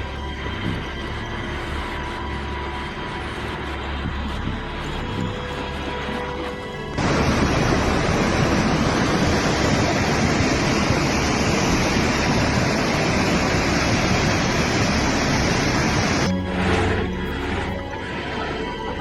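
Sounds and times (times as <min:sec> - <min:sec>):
floodwater rushing: 0:04.7 - 0:19.0.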